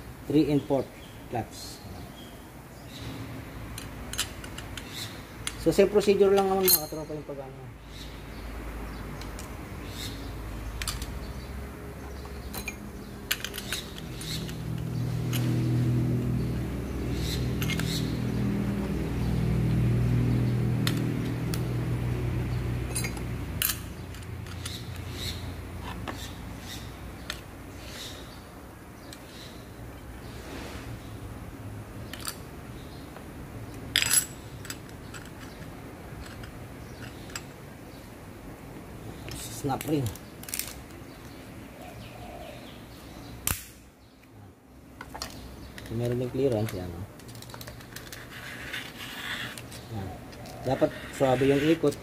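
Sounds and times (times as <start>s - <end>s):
light metal clicks and clinks: 3.7s - 7.3s, 12.4s - 15.7s.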